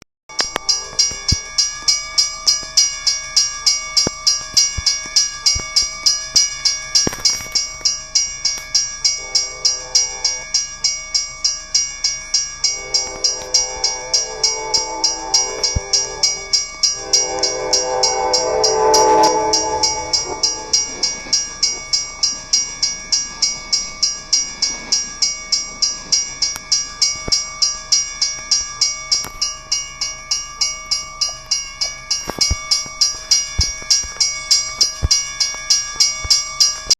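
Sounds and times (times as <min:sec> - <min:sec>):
bell ringing steadily: 0:00.3 - 0:36.9
train passing: 0:09.0 - 0:10.6, 0:12.3 - 0:27.2
locomotive air horn blasts: 0:09.1 - 0:10.4, 0:12.7 - 0:21.7.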